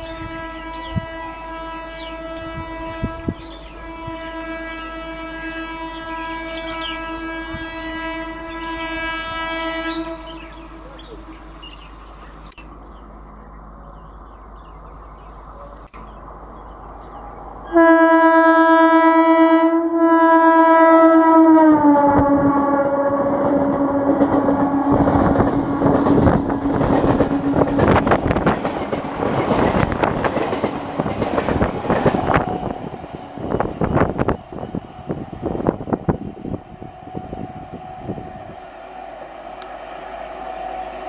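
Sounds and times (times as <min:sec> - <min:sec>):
train horn: 0:00.0 - 0:11.7, 0:17.6 - 0:41.0
train wheels clattering: 0:23.4 - 0:35.2.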